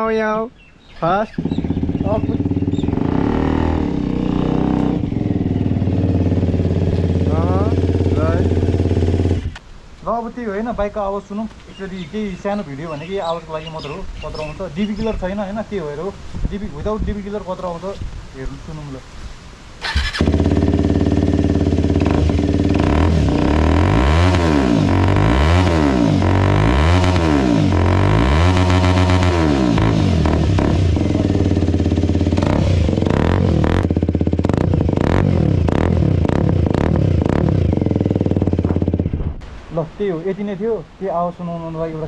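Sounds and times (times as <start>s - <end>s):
motorcycle engine revving: 1.2s - 9.6s, 19.8s - 39.4s
exhaust crackles: 1.2s - 10.2s, 19.8s - 40.5s.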